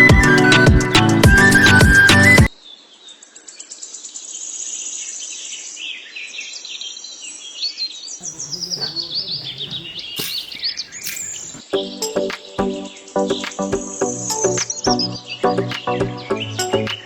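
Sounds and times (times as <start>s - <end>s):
insects chirping: 8.2s - 11.6s
birds chirping: 8.2s - 13.5s.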